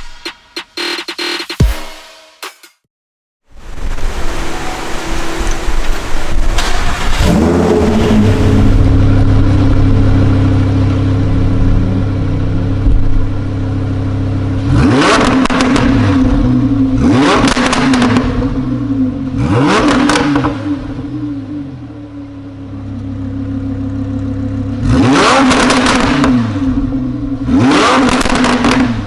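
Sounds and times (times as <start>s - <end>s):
sports car engine revving and idling: 6.9s - 29.0s.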